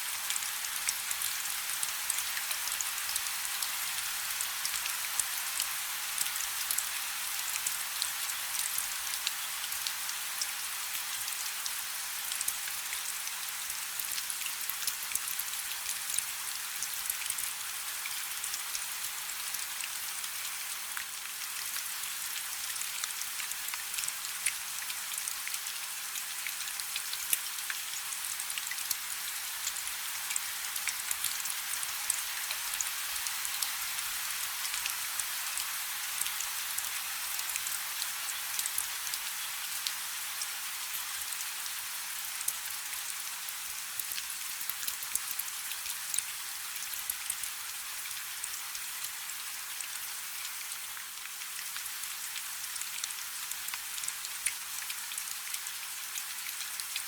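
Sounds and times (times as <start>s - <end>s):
light rain falling: 0.0s - 57.0s.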